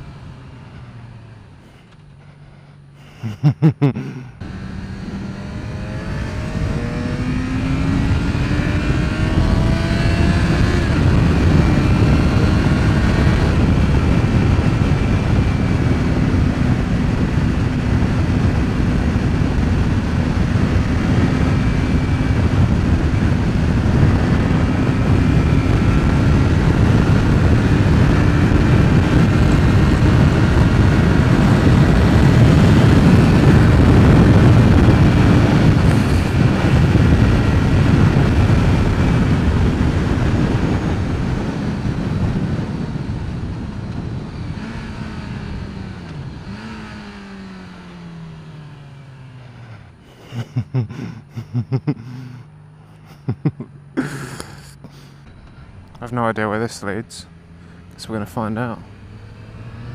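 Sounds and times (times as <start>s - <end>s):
motorcycle engine running: 4.4s - 56.0s, 57.0s - 59.9s
wind noise on microphone: 4.6s - 47.3s.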